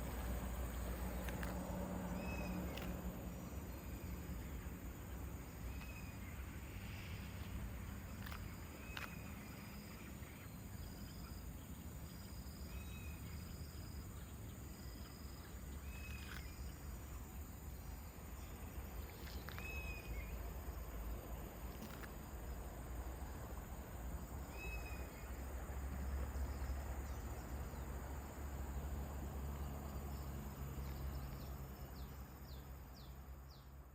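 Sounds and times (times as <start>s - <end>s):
bird chirping: 0.0s - 23.5s, 24.2s - 33.9s
low wind rumble: 0.0s - 33.6s
faint clicks: 2.6s - 3.0s, 21.7s - 22.3s.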